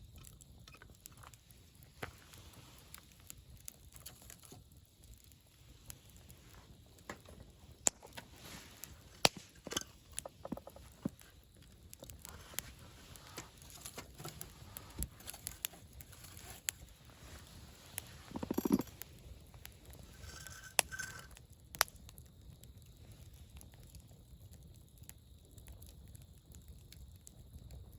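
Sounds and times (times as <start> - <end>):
campfire crackling and popping: 0.0 - 27.9.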